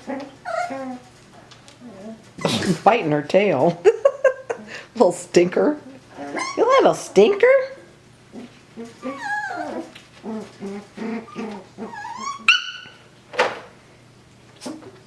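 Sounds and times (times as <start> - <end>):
puppies yipping and whining: 0.1 - 1.1, 8.4 - 13.1.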